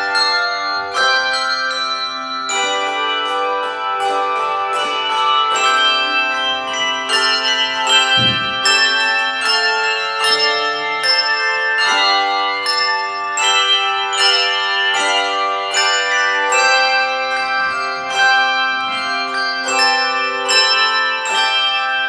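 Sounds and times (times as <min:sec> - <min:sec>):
handbell choir playing: 0:00.0 - 0:22.0
low thump: 0:08.2 - 0:08.7.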